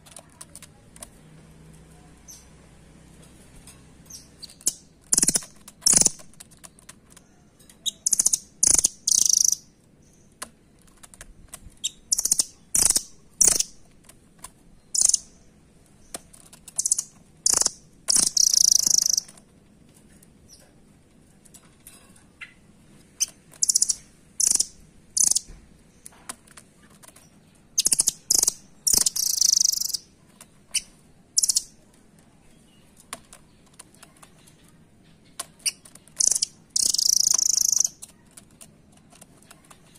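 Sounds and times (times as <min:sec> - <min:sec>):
bird high chipping calls: 0:07.8 - 0:10.3, 0:11.8 - 0:13.8, 0:14.8 - 0:15.5, 0:16.8 - 0:19.4, 0:23.2 - 0:25.5, 0:27.7 - 0:31.8, 0:34.3 - 0:38.0.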